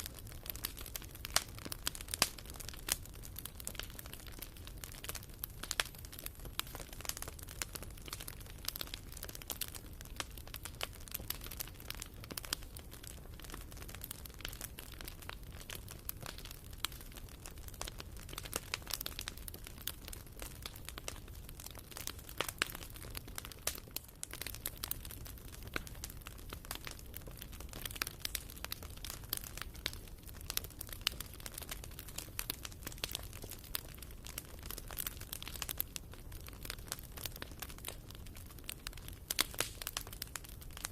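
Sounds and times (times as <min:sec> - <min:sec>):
firewood crackling and popping: 0:00.0 - 0:40.9
low fire rumble: 0:00.0 - 0:40.9.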